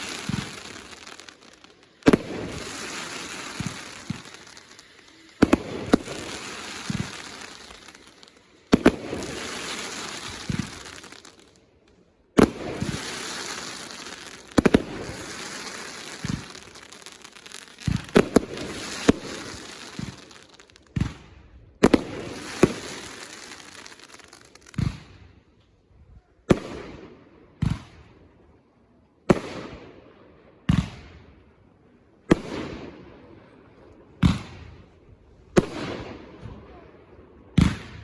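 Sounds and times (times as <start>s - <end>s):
fireworks bangs with crackling: 0.0s - 11.6s, 12.4s - 25.2s, 35.5s - 36.7s, 37.6s - 38.0s.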